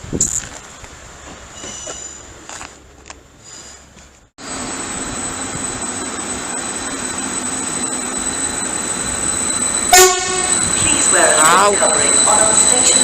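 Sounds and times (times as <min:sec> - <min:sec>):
train rumble: 0:00.0 - 0:13.0
high-pitched wheel squeal: 0:01.6 - 0:02.3, 0:05.0 - 0:13.0
loud train horn blast: 0:09.9 - 0:10.9.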